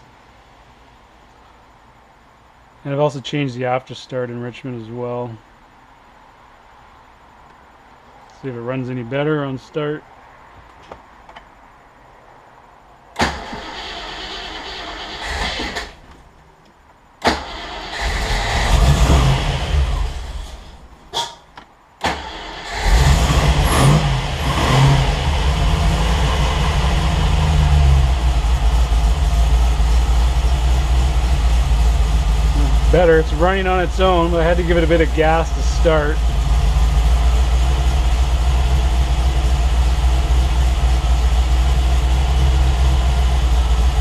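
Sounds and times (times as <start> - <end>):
car engine starting and idling: 13.0 - 16.6, 17.2 - 21.3, 22.0 - 44.0.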